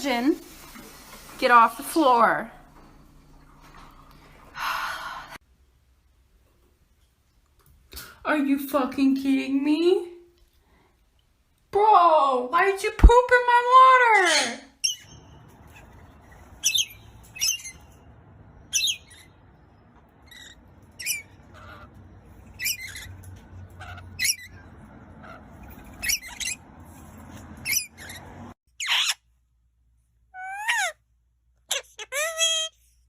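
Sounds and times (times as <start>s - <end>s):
parrot squawking and chirping: 13.8s - 29.3s, 30.3s - 31.0s, 31.6s - 32.9s.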